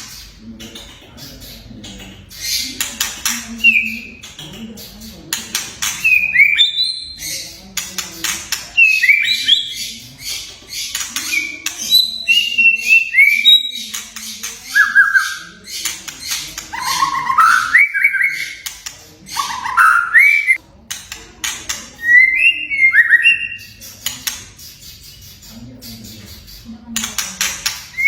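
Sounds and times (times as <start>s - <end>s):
bird singing whistled notes: 14.7s - 15.5s, 19.4s - 20.6s
bird clicking rattles: 27.0s - 28.0s.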